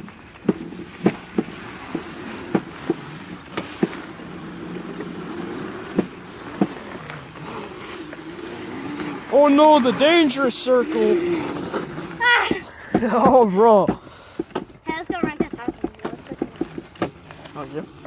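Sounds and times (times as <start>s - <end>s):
electric motor humming: 0.8s - 13.8s.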